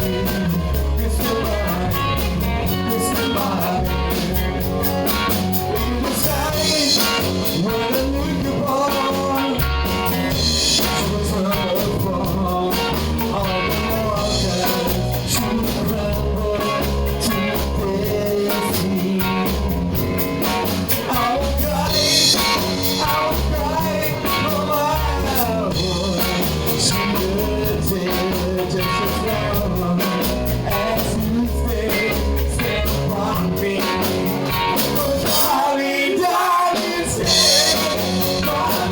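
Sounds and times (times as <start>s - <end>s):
bass guitar: 0.0s - 38.9s
drum kit beat: 0.0s - 38.9s
electric guitar: 0.0s - 38.9s
person singing: 0.0s - 38.9s.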